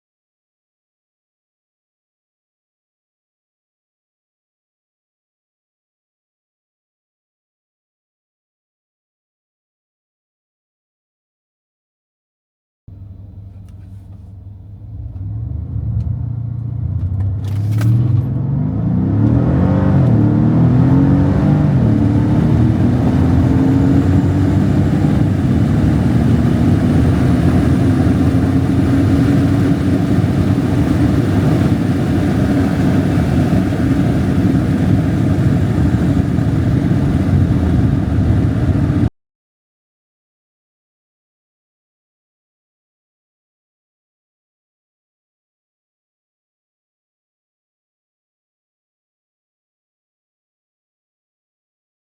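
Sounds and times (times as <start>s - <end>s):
car engine accelerating hard: 12.9s - 39.1s.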